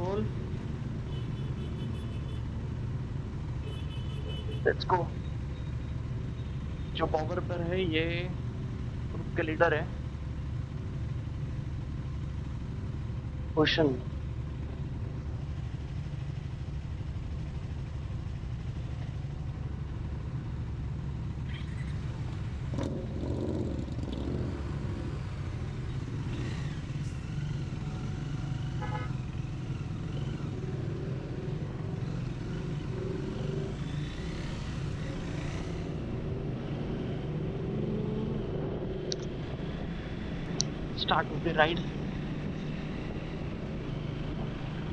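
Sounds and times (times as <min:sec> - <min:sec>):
horn toots: 0:01.1 - 0:02.4, 0:03.6 - 0:04.8, 0:28.8 - 0:29.2
motorcycle engine running: 0:08.1 - 0:44.9.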